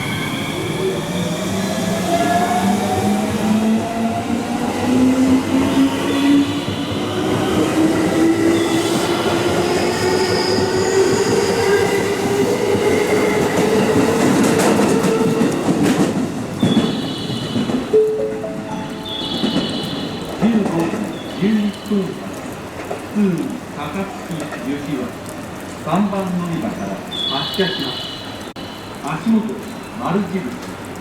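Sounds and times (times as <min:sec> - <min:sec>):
wheels rumbling on rails: 0:00.7 - 0:31.0.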